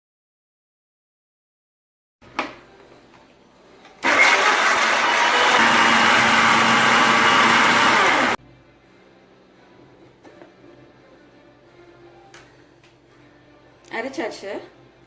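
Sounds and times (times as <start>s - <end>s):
mixer grinder grinding: 4.0s - 8.4s.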